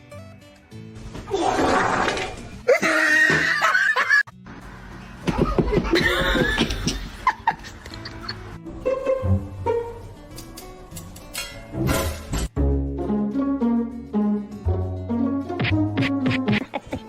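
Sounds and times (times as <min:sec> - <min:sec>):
background music: 0:00.0 - 0:17.0
laughter: 0:02.7 - 0:04.3, 0:05.3 - 0:08.5, 0:16.4 - 0:17.0.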